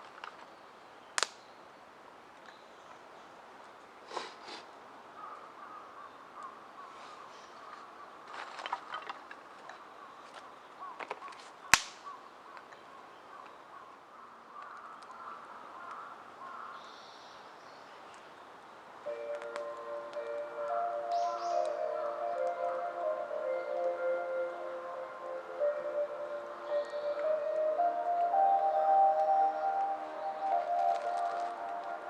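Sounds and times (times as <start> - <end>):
loud pop from fire: 11.8 - 12.0
music: 19.1 - 32.0.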